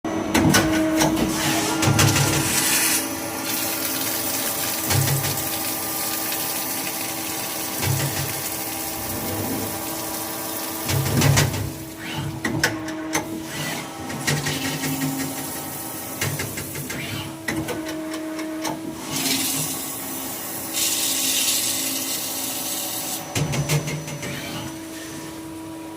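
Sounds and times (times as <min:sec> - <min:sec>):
machine hum: 0:00.1 - 0:13.2.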